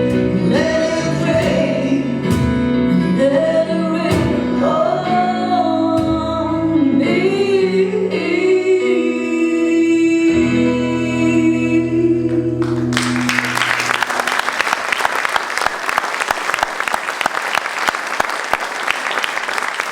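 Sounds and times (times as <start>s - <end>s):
singing and instruments holding chord: 0.0s - 13.1s
audience applause: 12.6s - 19.9s.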